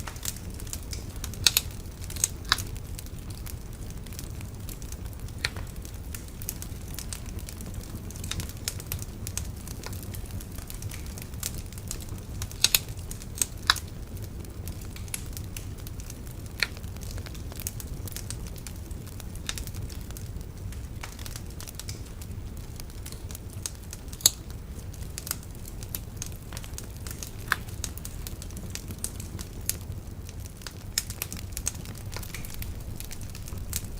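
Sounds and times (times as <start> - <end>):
bonfire low rumble: 0.0 - 33.9
fire crackles and pops: 0.0 - 33.9.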